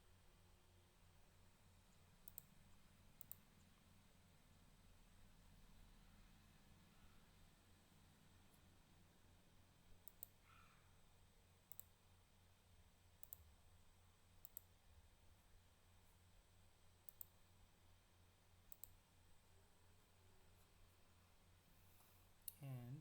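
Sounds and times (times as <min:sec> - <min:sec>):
low electrical hum: 0:00.0 - 0:23.0
computer mouse clicks: 0:01.9 - 0:02.6, 0:03.2 - 0:03.6, 0:10.0 - 0:10.5, 0:11.7 - 0:12.0, 0:13.2 - 0:13.5, 0:14.4 - 0:14.7, 0:17.0 - 0:17.4, 0:18.7 - 0:19.0.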